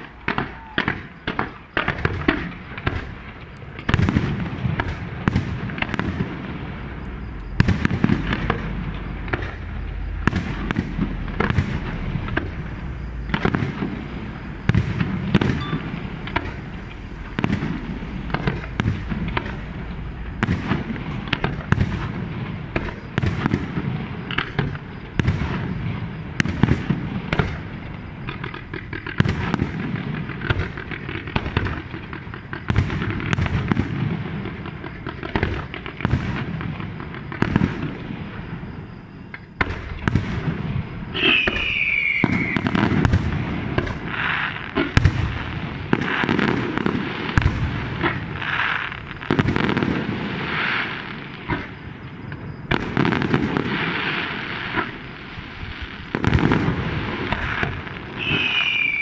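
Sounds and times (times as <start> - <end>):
firework whistling: 0.0 - 59.0
fireworks bursting: 0.0 - 59.0
low rumble: 6.4 - 22.8.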